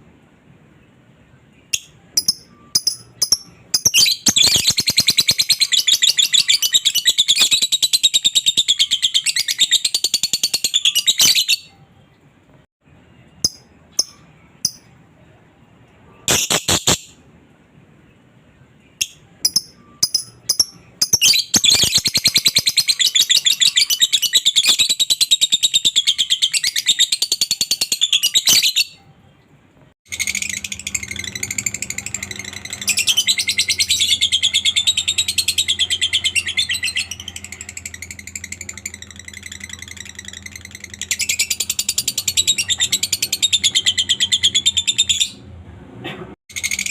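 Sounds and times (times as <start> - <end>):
bird rapid high chattering trill: 19.0 - 28.6.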